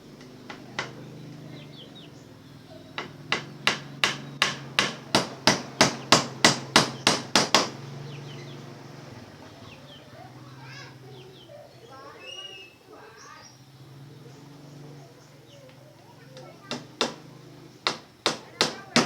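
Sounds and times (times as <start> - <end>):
hammer blows: 2.9 - 8.2.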